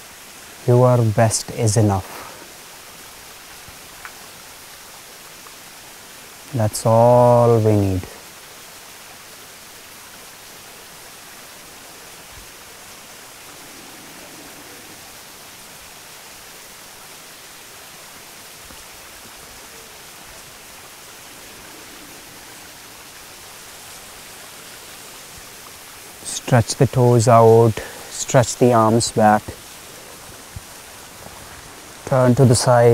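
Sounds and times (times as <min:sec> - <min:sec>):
flowing water rushing: 0:00.0 - 0:32.9.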